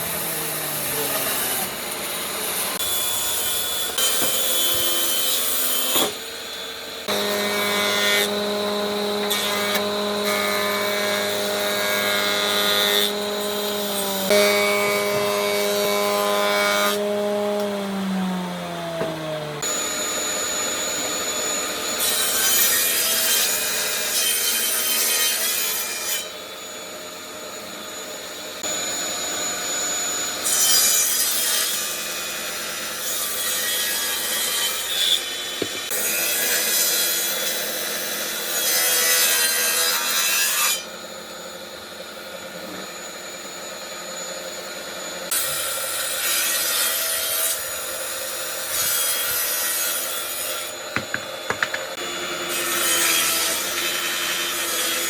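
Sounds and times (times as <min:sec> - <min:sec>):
power tool motor winding down: 0:17.0 - 0:22.0.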